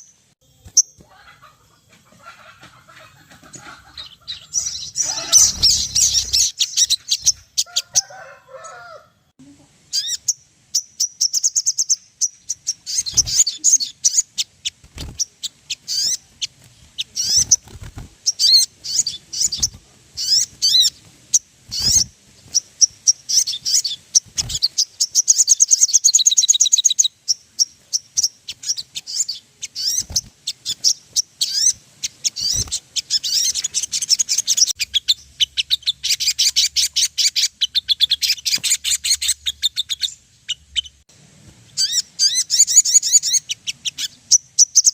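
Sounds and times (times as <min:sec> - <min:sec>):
birds chirping and trilling: 0:00.0 - 0:09.1, 0:09.8 - 0:44.9.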